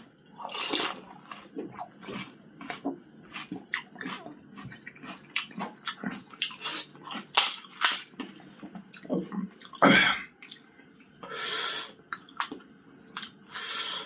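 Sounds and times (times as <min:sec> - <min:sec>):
wet chewing: 0:00.4 - 0:09.8.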